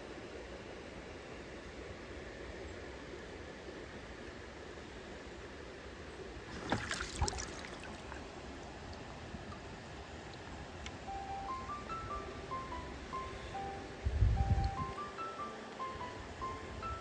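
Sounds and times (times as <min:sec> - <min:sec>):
sharp knocks and splashes: 0:06.5 - 0:08.7
stream water flowing: 0:06.5 - 0:14.0
bell-like music melody: 0:11.1 - 0:17.0.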